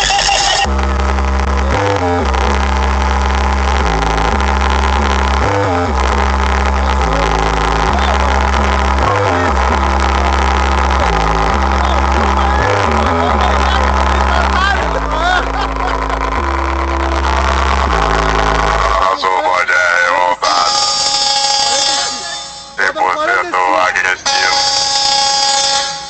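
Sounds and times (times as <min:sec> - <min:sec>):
bass-heavy music through car speakers: 0:00.0 - 0:20.0.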